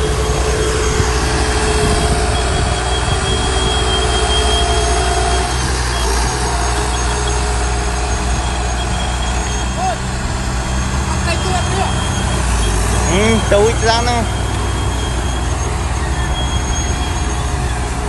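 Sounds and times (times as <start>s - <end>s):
diesel earthmoving machine running: 0.0s - 18.0s.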